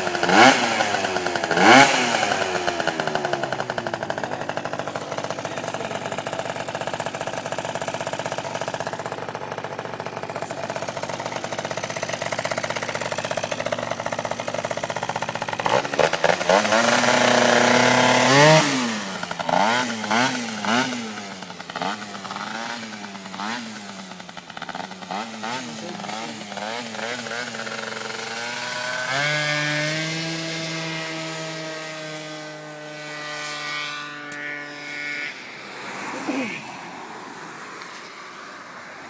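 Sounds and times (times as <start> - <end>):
scooter engine idling and revving: 0.0 - 39.0.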